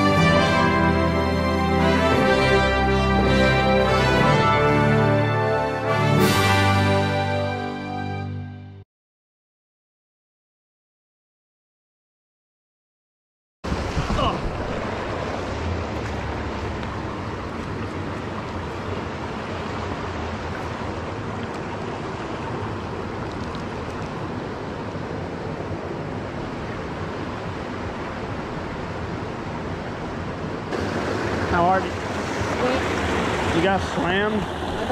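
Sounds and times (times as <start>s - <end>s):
creek water running over rock: 13.7s - 25.0s, 30.7s - 34.9s.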